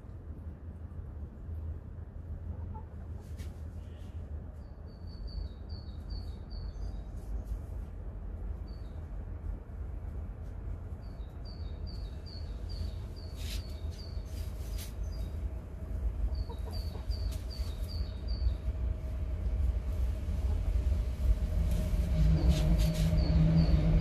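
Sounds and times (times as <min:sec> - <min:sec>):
low rumble: 0:15.1 - 0:24.0.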